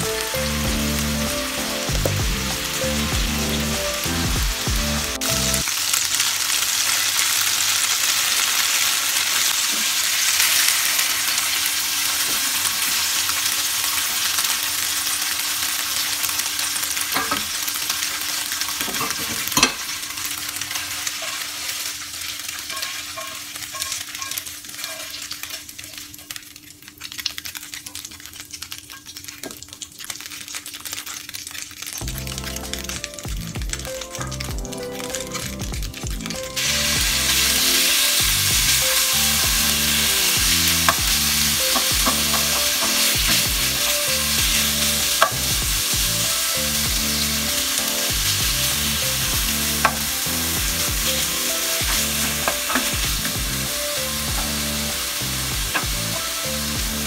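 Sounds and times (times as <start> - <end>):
tofu sizzling in hot oil: 0.0 - 57.0
spatula stirring in a pan: 20.7 - 26.4.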